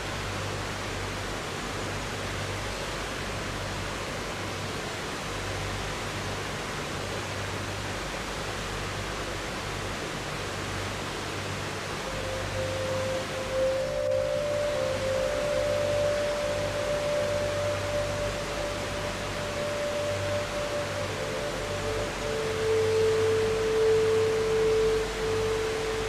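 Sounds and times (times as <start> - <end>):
river water flowing: 0.0 - 26.0
sustained ringing tone: 12.0 - 26.0.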